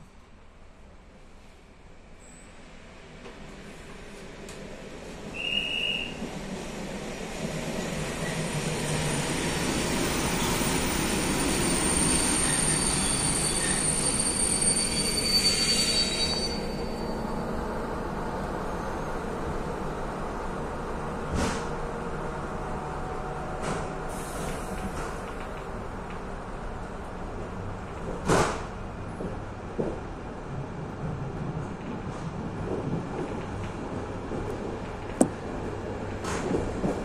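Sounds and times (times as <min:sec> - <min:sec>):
wheels squealing: 0:11.5 - 0:17.1
train running hum: 0:16.2 - 0:37.0.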